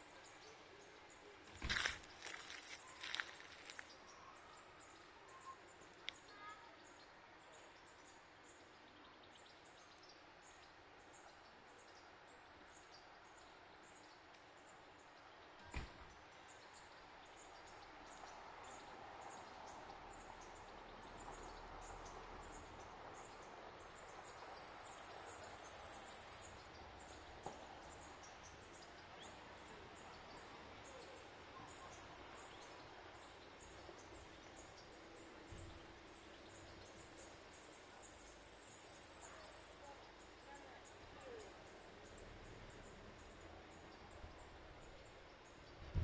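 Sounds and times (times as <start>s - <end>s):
faint insect chirping: 23.6s - 29.0s, 29.7s - 45.7s.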